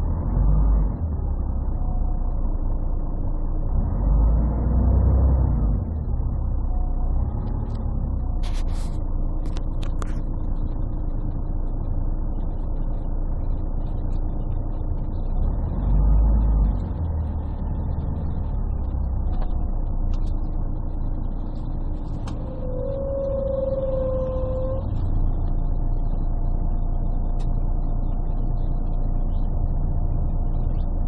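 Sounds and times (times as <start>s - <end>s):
bus diesel engine rumbling: 0.0s - 31.0s.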